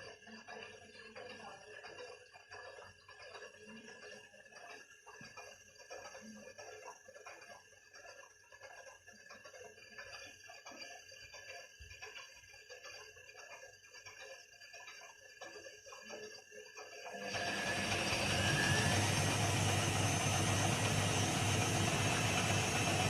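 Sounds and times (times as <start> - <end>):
faint clicking and ticking: 0.0 - 17.2
faint steady whine: 0.0 - 23.0
washing machine drum motor: 17.1 - 23.0.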